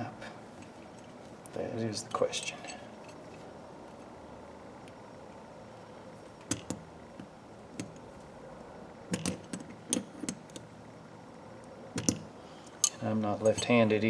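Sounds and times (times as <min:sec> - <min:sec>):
steady background hum: 0:00.0 - 0:14.0
metallic clicks of ratchet parts: 0:06.4 - 0:08.1, 0:09.1 - 0:10.7, 0:12.0 - 0:14.0.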